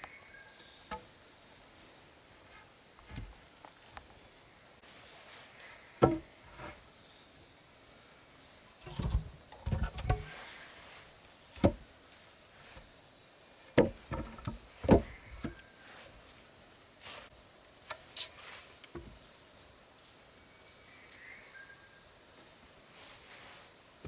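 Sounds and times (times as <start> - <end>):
wooden knocks and clunks: 3.1 - 3.4, 6.0 - 6.8, 8.8 - 10.4, 11.6 - 11.9, 13.8 - 15.6, 19.0 - 19.2.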